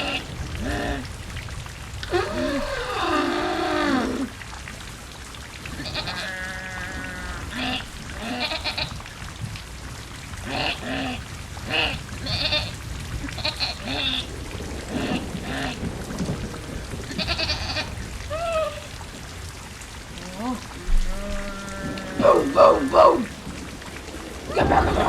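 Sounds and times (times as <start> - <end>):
rain-like hiss: 0.0 - 25.0
farm animals bleating: 5.8 - 8.9.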